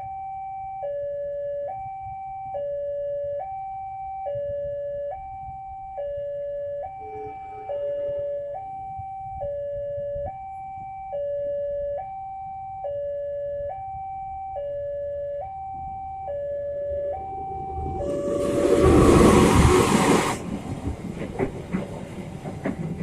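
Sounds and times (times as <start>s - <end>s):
level crossing two-tone alarm: 0.0s - 18.7s.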